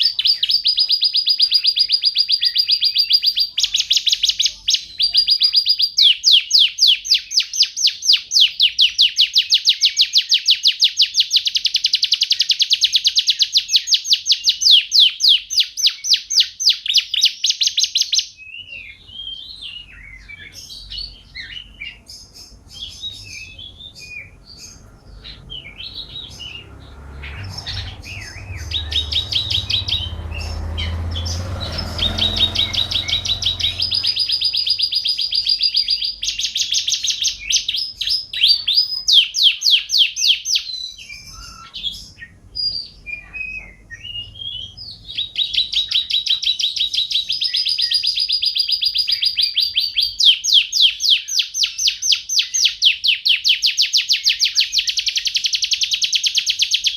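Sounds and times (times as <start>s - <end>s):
canary singing trills: 0.0s - 56.9s
low rumble: 24.4s - 34.8s.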